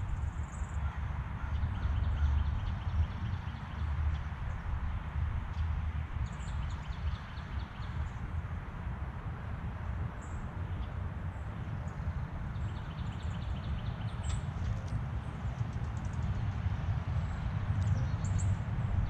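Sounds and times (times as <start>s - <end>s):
songbirds chirping: 0.0s - 8.6s, 9.8s - 19.0s
low outdoor rumble: 8.0s - 19.0s.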